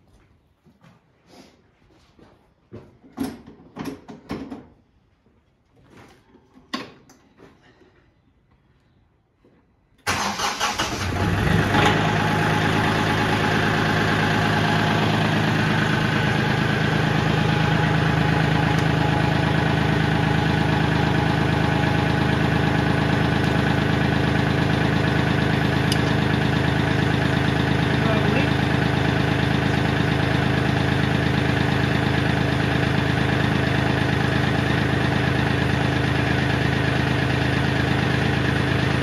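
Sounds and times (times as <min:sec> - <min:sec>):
tractor starter cranking: 0:10.0 - 0:27.2
diesel engine idling: 0:10.1 - 0:39.0.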